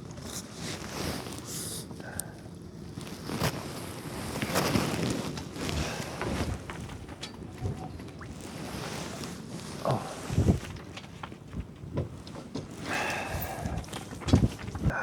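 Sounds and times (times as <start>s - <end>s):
gusting wind on microphone: 3.6s - 10.9s, 12.9s - 15.0s
choppy water: 3.9s - 11.8s.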